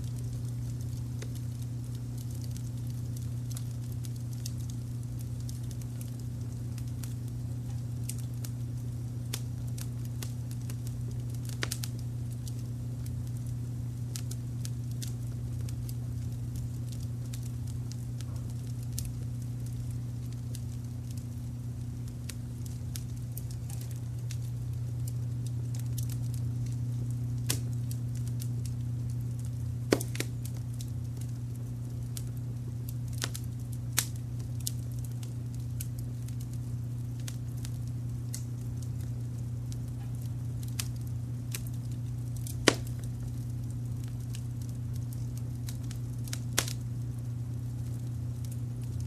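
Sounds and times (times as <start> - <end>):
low rumble of brown noise: 0.0 - 49.0
wood fire crackling: 0.0 - 49.0
sharp pops: 29.9 - 30.3, 42.6 - 43.0.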